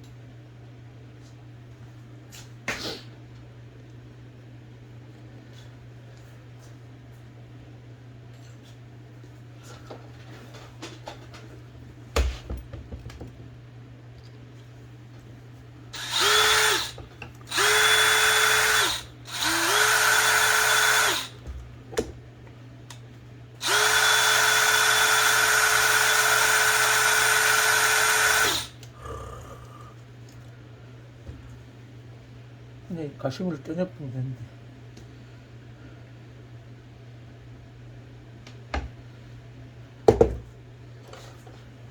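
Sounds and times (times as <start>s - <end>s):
small electric drill whining: 16.0s - 21.4s, 23.6s - 28.9s.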